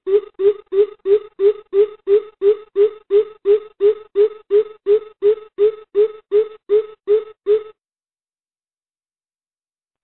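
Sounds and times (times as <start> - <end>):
bird deep hooting call: 0.0 - 7.7.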